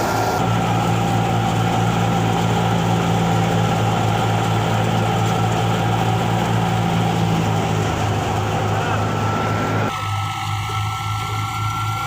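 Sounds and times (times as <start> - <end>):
thresher whirring: 0.0 - 12.0
tractor engine droning: 0.0 - 12.0.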